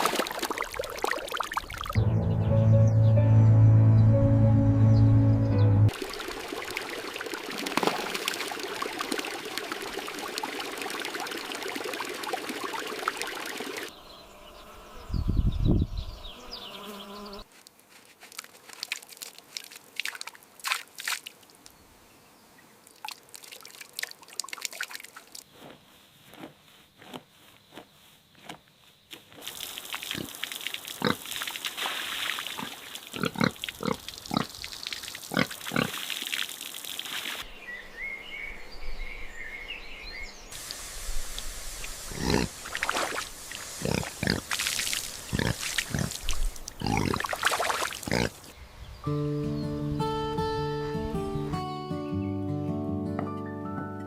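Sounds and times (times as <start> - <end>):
background noise: 13.9 - 53.2
pigs grunting: 31.0 - 31.2, 32.6 - 34.6, 35.3 - 36.0, 42.1 - 42.6, 43.8 - 44.6, 45.3 - 46.2, 46.8 - 47.3, 48.0 - 48.4.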